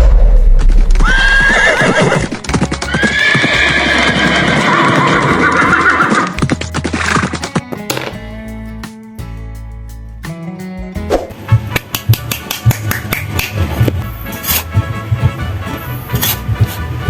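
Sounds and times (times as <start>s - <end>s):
background music: 0.3s - 17.0s
rapid hoofbeats: 0.5s - 8.1s, 11.3s - 17.0s
horse whinnying: 1.0s - 6.4s.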